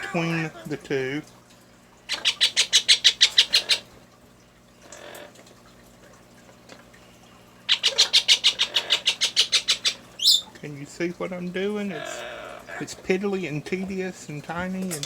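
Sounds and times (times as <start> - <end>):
parakeet chirping: 2.1 - 3.8, 7.7 - 10.5.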